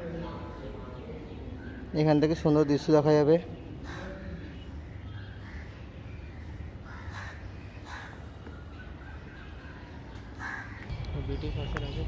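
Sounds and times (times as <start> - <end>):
crows cawing: 3.8 - 11.3
steady low rumble: 10.4 - 12.0.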